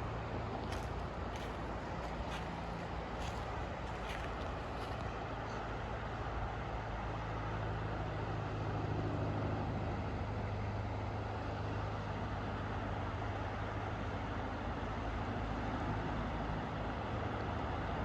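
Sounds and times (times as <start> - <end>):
vehicle engine humming: 0.0 - 7.5.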